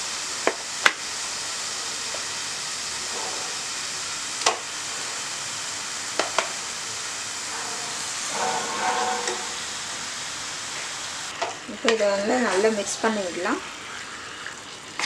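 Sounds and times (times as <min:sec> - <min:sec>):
chicken sizzling in a pan: 0:00.0 - 0:15.0
spoon scraping pan: 0:07.4 - 0:10.9.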